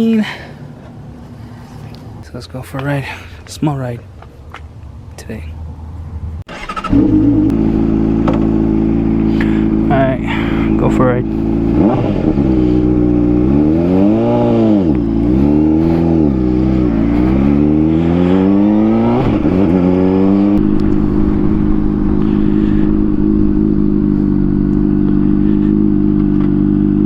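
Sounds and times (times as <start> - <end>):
motorcycle engine revving: 6.5 - 27.0.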